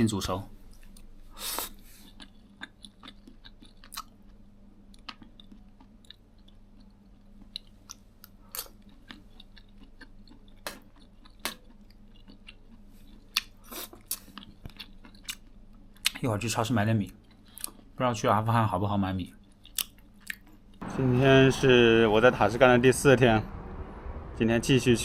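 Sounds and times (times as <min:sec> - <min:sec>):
steady low hum: 0:00.0 - 0:25.0
chewing: 0:00.7 - 0:16.3, 0:17.0 - 0:18.0, 0:19.3 - 0:20.8.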